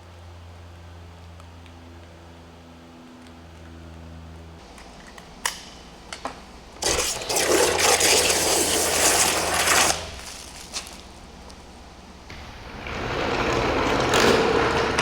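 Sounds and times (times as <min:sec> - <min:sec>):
water spraying: 0:06.8 - 0:11.5.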